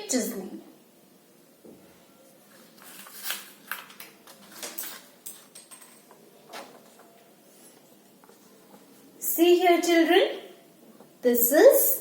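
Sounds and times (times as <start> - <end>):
rustling of handled objects: 2.2 - 9.2.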